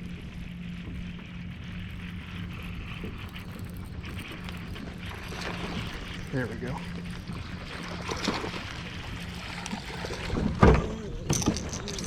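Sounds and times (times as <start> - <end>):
water sloshing: 3.0 - 12.0.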